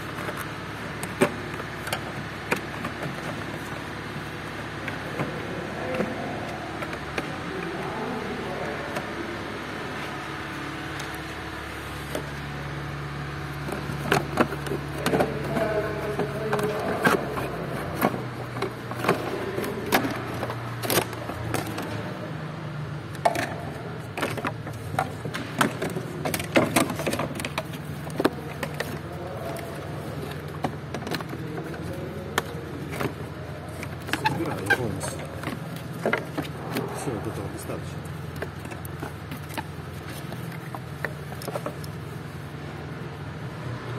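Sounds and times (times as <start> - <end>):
steady low hum: 0.0 - 43.9
plastic panels clicking and rattling: 13.6 - 22.2, 23.1 - 42.3.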